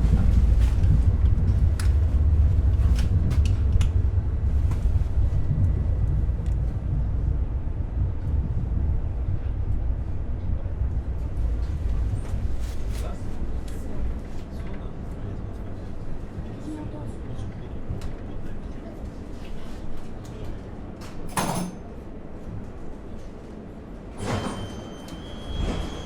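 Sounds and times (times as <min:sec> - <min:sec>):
train running gear rumble: 0:00.0 - 0:26.0.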